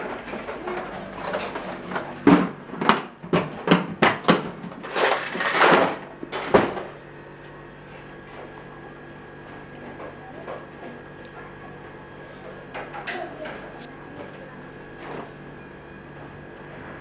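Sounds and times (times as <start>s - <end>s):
hard objects knocking and clattering: 0.1s - 6.8s.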